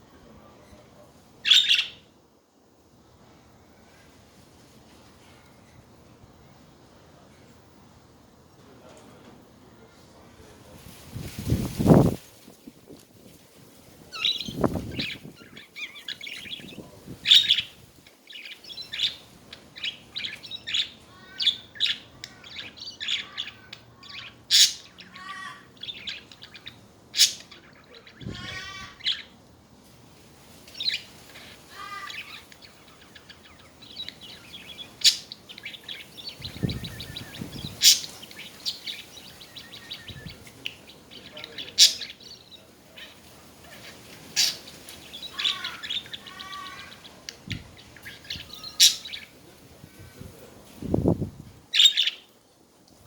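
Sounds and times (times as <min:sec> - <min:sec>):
budgerigars chattering: 0:01.4 - 0:02.0, 0:14.2 - 0:29.3, 0:30.8 - 0:49.4, 0:51.7 - 0:52.2.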